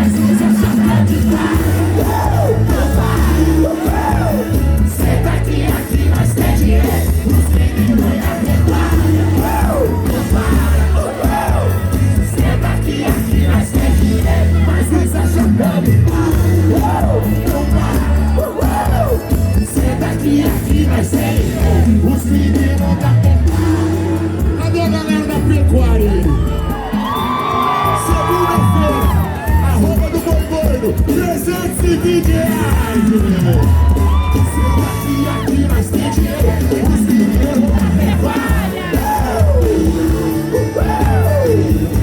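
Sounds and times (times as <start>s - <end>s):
crowd shouting: 0.0s - 24.7s, 26.1s - 42.0s
loud live band music: 0.0s - 42.0s.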